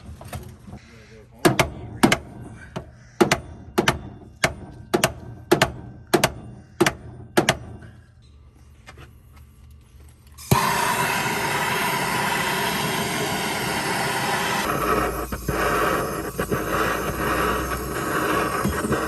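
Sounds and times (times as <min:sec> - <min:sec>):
sharp metallic clanks: 0:01.5 - 0:08.4.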